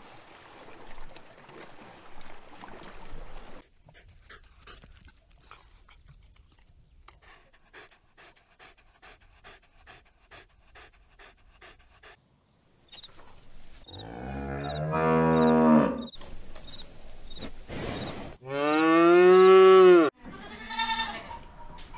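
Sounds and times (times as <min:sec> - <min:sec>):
dog panting: 0:07.0 - 0:12.2
cow mooing: 0:14.0 - 0:16.1, 0:18.4 - 0:21.2.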